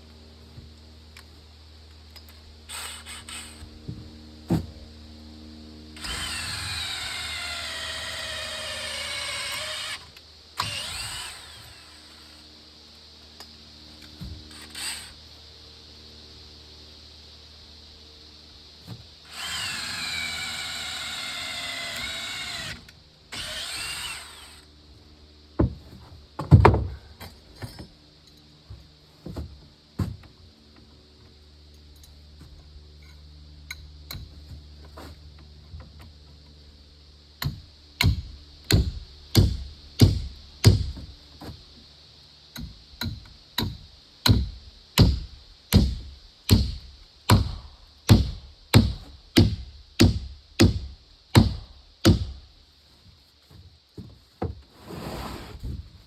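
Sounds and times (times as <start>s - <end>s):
power drill whining: 2.7s - 3.7s, 6.0s - 12.4s, 14.5s - 15.2s, 19.2s - 24.7s
sharp strikes on wood: 37.4s - 41.1s, 42.6s - 52.4s.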